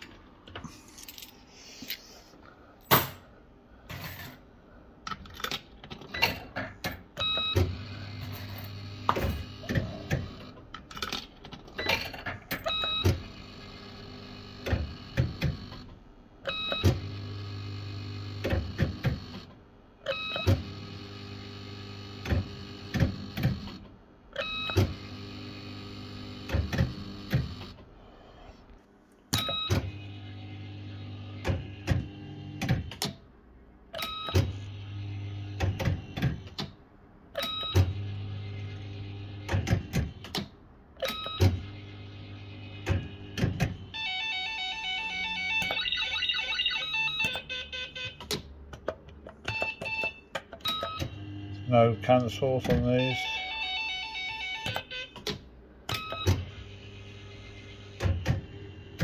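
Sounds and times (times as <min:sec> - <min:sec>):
fruit machine reels humming and clicking: 0:06.0 - 0:27.9.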